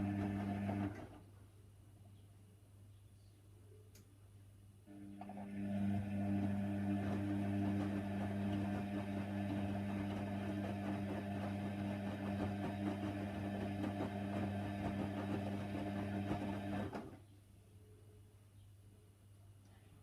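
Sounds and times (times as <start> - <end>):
drain pump humming: 0.0 - 1.0, 4.9 - 16.9.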